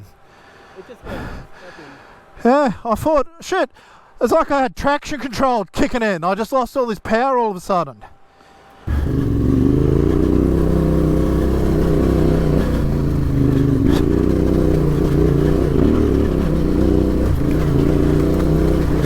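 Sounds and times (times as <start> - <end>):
motorcycle engine running: 8.9 - 19.0.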